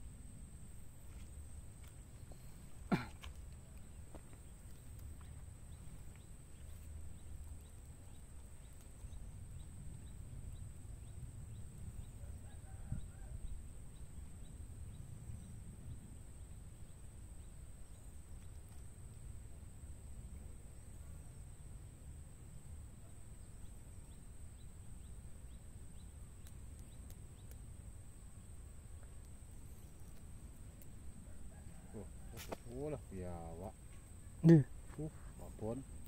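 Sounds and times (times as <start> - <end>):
low steady rumble: 0.0 - 36.0.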